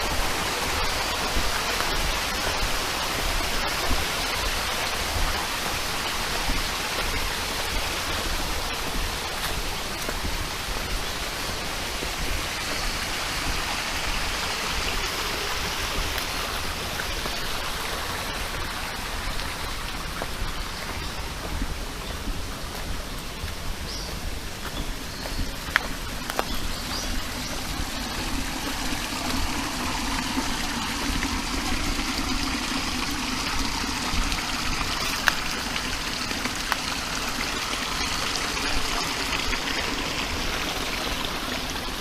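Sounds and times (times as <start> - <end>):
stream flowing: 0.0 - 42.0.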